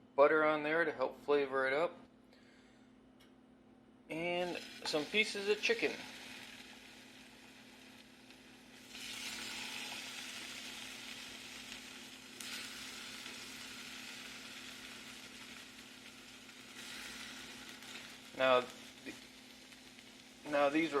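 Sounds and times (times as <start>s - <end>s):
chicken sizzling in a skillet: 4.3s - 21.0s.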